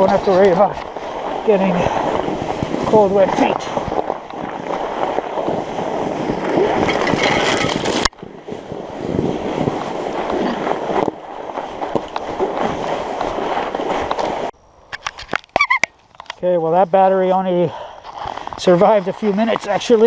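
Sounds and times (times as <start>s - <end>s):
bike tyres rolling on snow: 0.0s - 14.6s, 16.3s - 20.0s
wind on microphone: 0.0s - 14.6s.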